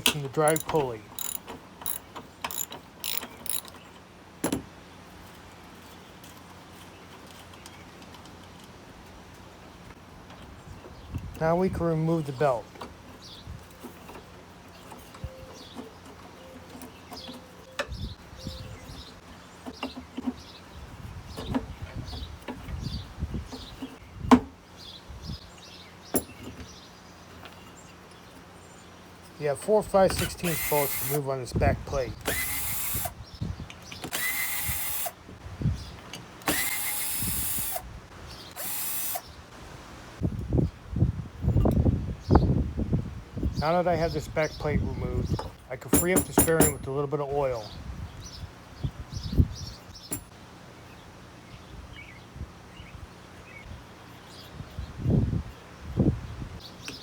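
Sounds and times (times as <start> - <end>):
clicks and knocks of parts handled: 0.0 - 3.8
cordless drill spinning: 0.5 - 3.7, 30.2 - 31.2, 32.2 - 33.1, 34.1 - 35.2, 36.4 - 37.8, 38.5 - 39.2.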